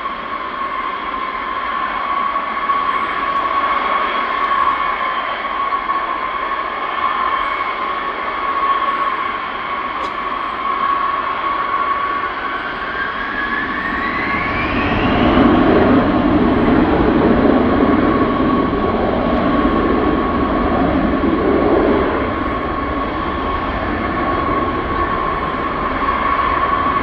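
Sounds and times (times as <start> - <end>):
jet engines whining: 0.0 - 27.0
loud low jet rumble: 0.0 - 27.0
rising jet whine: 0.0 - 27.0.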